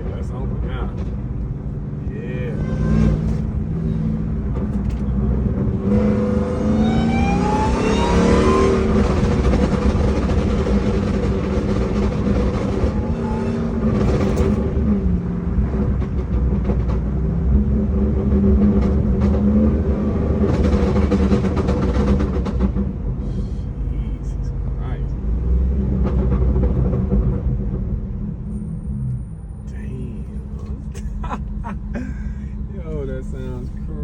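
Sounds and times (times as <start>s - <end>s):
truck engine accelerating hard: 0.0s - 34.0s.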